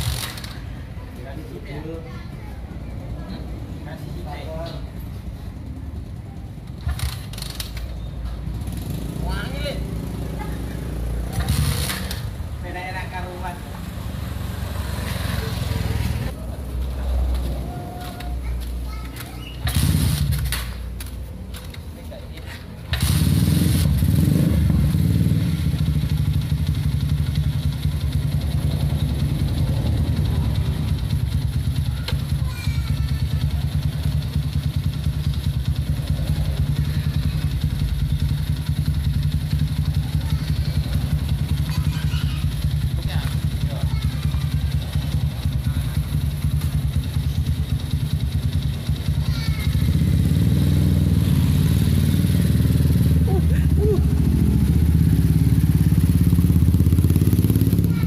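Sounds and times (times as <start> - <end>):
motorcycle engine pulsing loudly: 23.0 - 32.0, 33.2 - 58.0.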